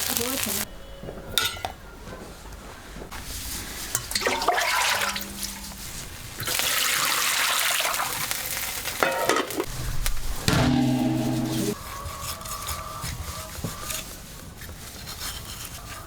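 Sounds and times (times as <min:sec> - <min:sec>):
water running: 0:04.0 - 0:08.4
knocks: 0:10.5 - 0:11.8.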